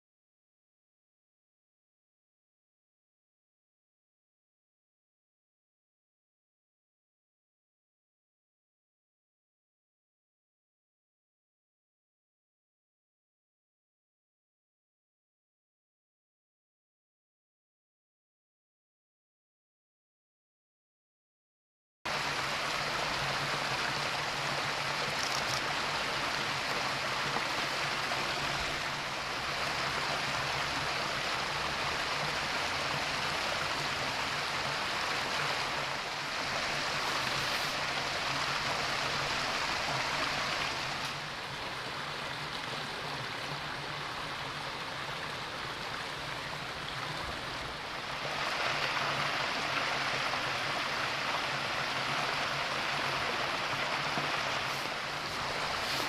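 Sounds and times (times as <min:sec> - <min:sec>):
river water rushing: 0:22.1 - 0:56.0.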